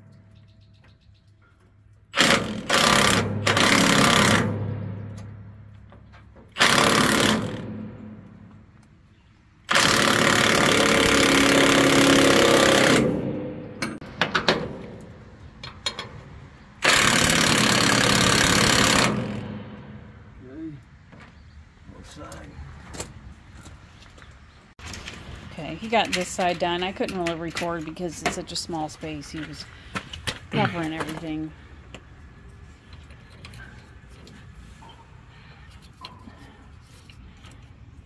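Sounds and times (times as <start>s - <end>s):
impact wrench bursts: 2.1s - 4.9s, 6.5s - 8.2s, 9.6s - 13.6s, 16.8s - 20.0s.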